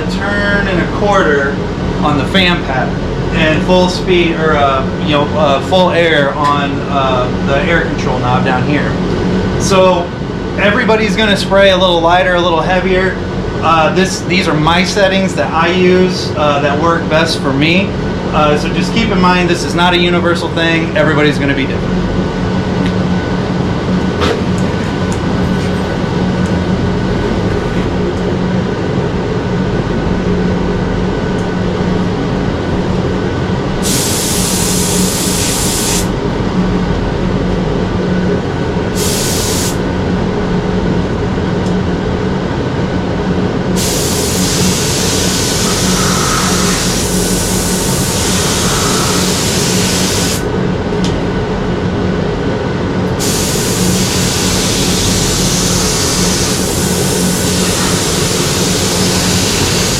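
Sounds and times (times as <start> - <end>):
loud steady machine hum: 0.0 - 59.9
spray gun hissing: 33.8 - 36.1, 38.9 - 39.8, 43.8 - 50.5, 53.2 - 59.9.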